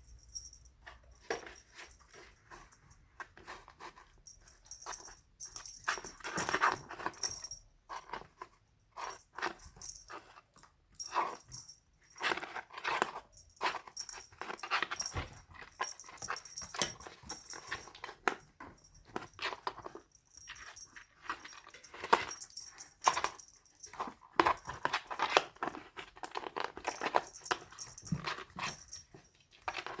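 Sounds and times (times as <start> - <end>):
kittens scuffling in cardboard box: 0.8 - 4.8.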